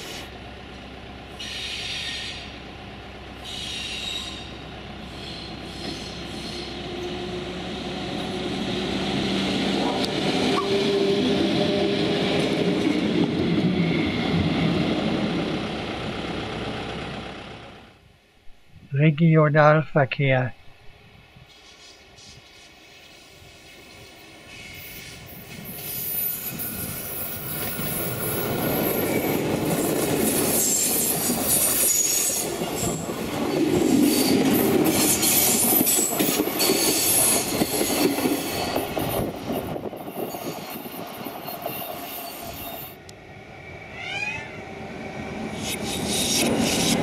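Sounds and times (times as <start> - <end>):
train wheels rumbling on rail: 0.0 - 18.0, 21.2 - 47.0
wheels squealing: 23.6 - 43.0.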